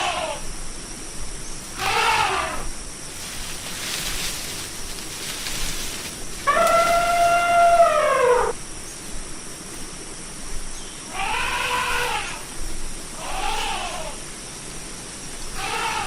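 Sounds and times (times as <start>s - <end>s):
elephant trumpeting: 1.8s - 2.7s, 6.5s - 8.6s, 15.6s - 16.0s.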